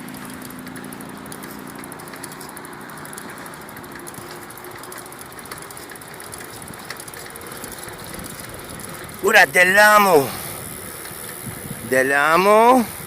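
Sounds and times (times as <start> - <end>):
bicycle rolling noise: 0.0 - 13.0
wind buffeting microphone: 5.2 - 13.0.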